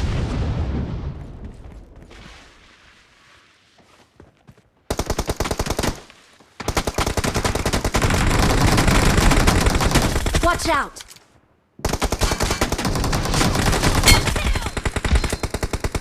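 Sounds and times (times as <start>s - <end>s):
video game automatic gunfire: 6.6s - 10.4s.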